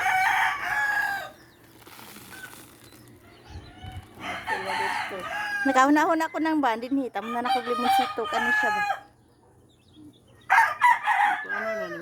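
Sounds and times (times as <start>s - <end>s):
rooster crowing: 0.0s - 1.4s, 4.2s - 5.9s, 7.2s - 9.1s, 10.5s - 12.0s.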